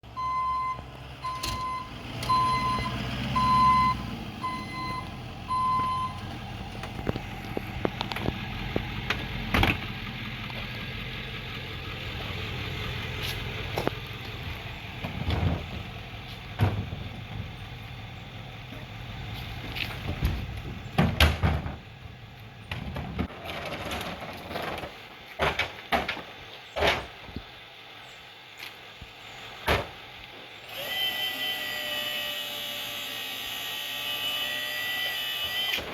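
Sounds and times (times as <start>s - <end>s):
truck engine running: 0.0s - 35.9s
backup alarm beeping: 0.2s - 6.3s
bangs and clattering thuds: 15.0s - 17.6s, 19.9s - 21.9s, 22.6s - 27.4s, 29.6s - 30.0s.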